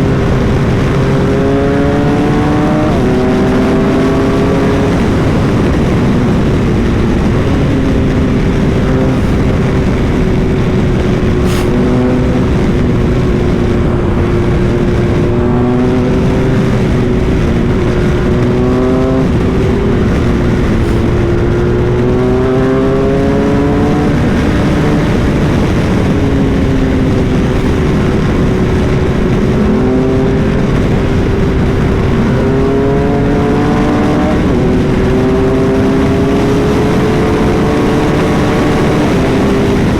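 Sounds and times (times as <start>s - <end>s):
motorcycle engine at speed: 0.0s - 39.9s
wind noise rushing: 0.0s - 39.9s.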